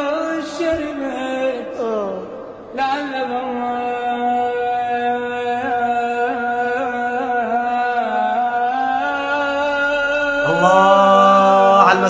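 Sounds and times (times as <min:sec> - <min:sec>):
man singing unaccompanied: 0:10.4 - 0:12.0.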